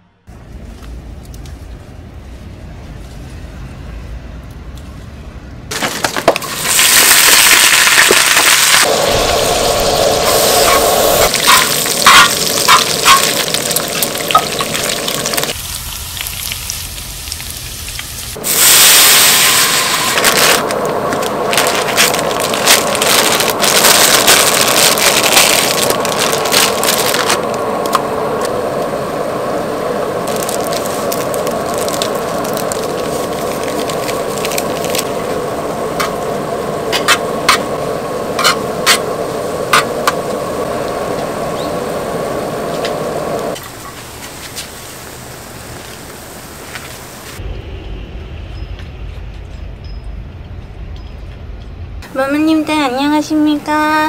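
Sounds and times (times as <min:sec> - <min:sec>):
food sizzling in frying pan: 0:06.4 - 0:29.4.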